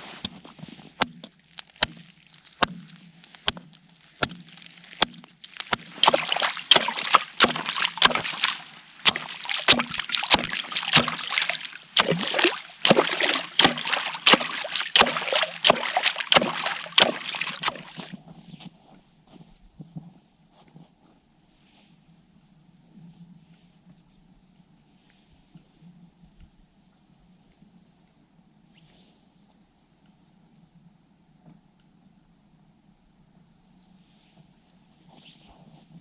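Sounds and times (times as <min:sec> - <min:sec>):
broken ice crunching: 0:04.2 - 0:18.1
strikes chopping ice: 0:05.0 - 0:18.1.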